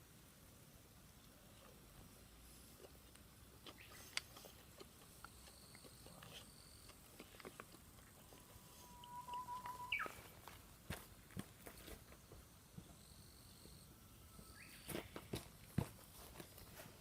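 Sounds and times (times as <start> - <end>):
thin whistling tone: 8.6 - 10.3.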